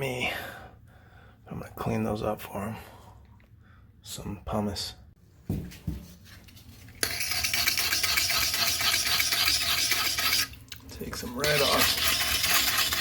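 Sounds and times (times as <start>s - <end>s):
pumice stone scratching porcelain: 7.0s - 10.6s, 11.2s - 13.0s.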